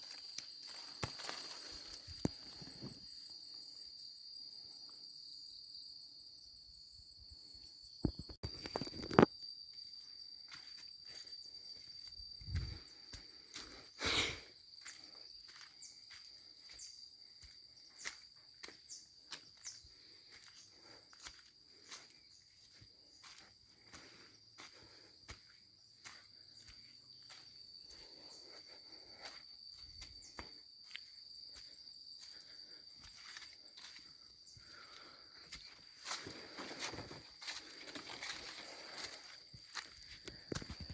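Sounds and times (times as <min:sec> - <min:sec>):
footsteps and rustling among plants: 0:00.0 - 0:03.2, 0:09.7 - 0:14.0, 0:14.7 - 0:40.9
insects chirring: 0:00.0 - 0:40.9.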